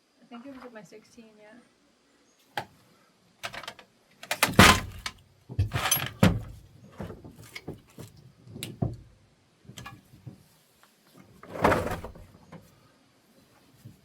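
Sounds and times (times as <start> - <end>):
metal tools clattering: 4.3 - 6.5.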